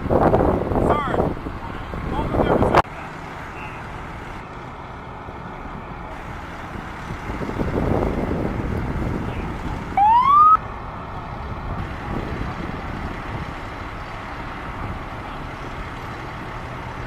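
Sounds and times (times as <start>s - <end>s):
road traffic passing: 0.0s - 17.0s
short siren whoop: 10.0s - 10.6s.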